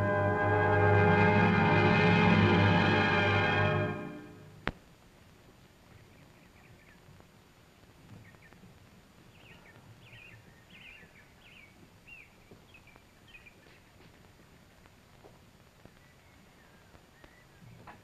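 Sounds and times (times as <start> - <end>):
low background hiss and rumble: 0.0 - 18.0
bird chirping: 5.9 - 7.1, 9.3 - 13.9.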